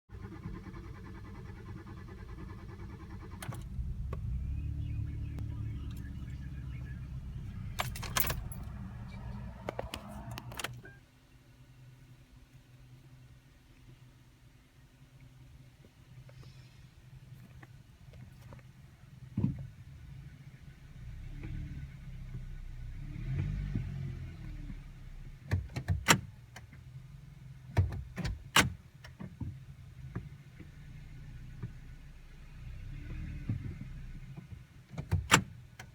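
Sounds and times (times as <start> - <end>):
car engine cranking: 0.1 - 11.0
keys jangling: 7.7 - 8.8.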